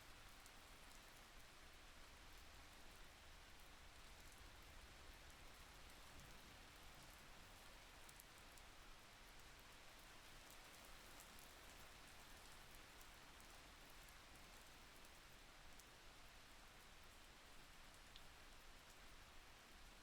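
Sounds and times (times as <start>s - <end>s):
faint steady rain: 0.0s - 20.0s.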